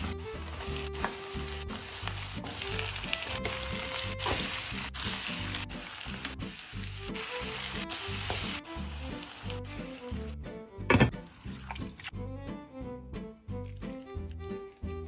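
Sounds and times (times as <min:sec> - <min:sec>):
food sizzling in a pan: 0:00.0 - 0:10.3
background music: 0:00.0 - 0:15.0.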